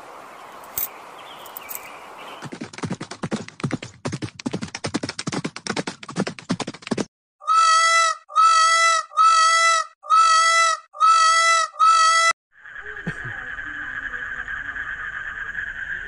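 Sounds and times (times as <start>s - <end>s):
horses galloping: 2.4s - 7.1s
peacock calling: 7.4s - 13.0s.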